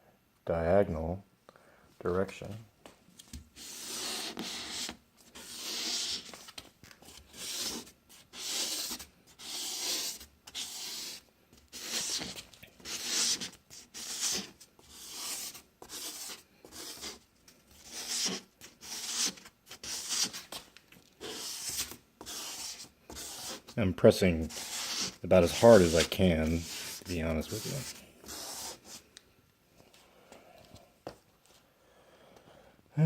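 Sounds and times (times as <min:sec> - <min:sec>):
abrasive pad scrubbing plastic: 0:24.4 - 0:29.0.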